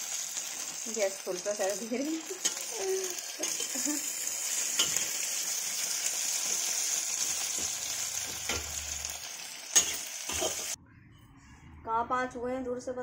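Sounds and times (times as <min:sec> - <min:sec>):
noodles sizzling in a pan: 0:00.0 - 0:10.8
steel spatula scraping a pan: 0:02.2 - 0:05.6, 0:09.7 - 0:10.8.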